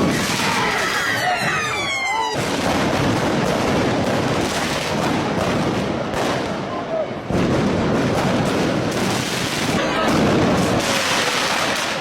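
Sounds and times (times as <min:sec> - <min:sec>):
crowd shouting: 0:00.0 - 0:02.7, 0:09.7 - 0:12.0
fireworks banging: 0:00.0 - 0:12.0.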